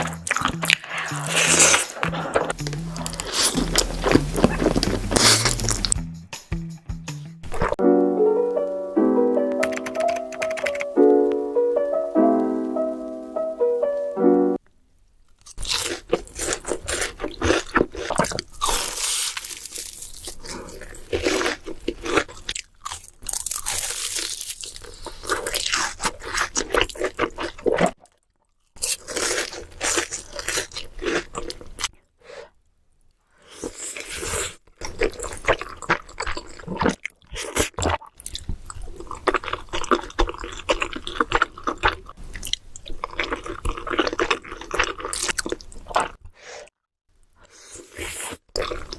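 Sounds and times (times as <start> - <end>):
person chewing crunchy food: 0.0 - 6.0, 7.4 - 7.8, 15.4 - 31.9, 33.5 - 46.7, 47.5 - 48.9.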